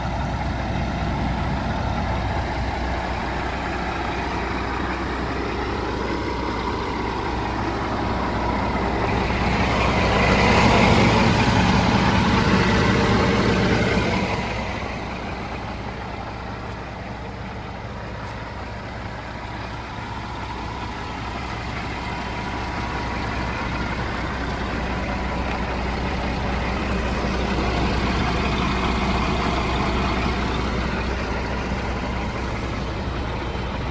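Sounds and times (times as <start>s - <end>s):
truck diesel engine idling: 0.0s - 33.9s.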